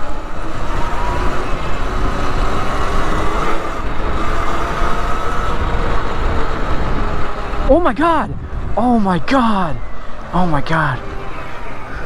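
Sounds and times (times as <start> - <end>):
motorcycle engine accelerating: 0.0 - 8.8
wind rumble on microphone: 0.0 - 12.0.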